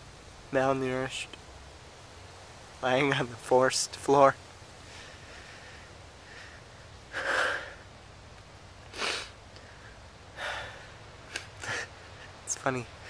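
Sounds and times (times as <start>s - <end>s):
man breathing and sniffing: 4.8s - 7.9s, 8.8s - 13.0s.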